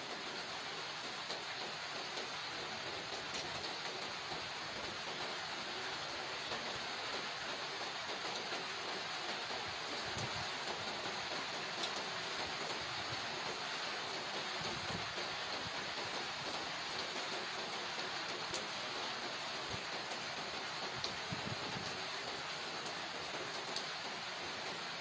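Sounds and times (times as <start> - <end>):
steady rain on paving and leaves: 0.0 - 25.0
sharp raindrop ticks: 16.1 - 18.7, 22.8 - 24.2.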